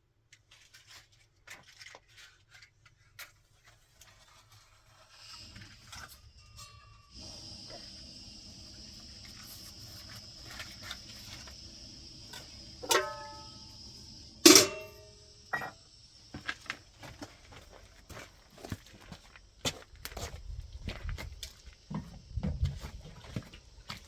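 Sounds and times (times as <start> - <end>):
steady high hiss: 5.2 - 16.8
ringing strikes: 14.5 - 15.7.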